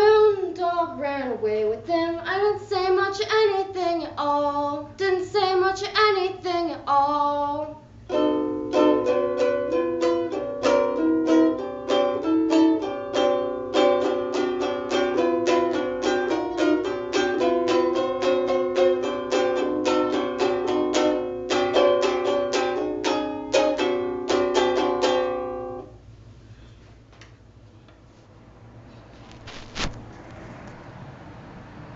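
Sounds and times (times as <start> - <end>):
ukulele plucked: 8.1 - 25.9.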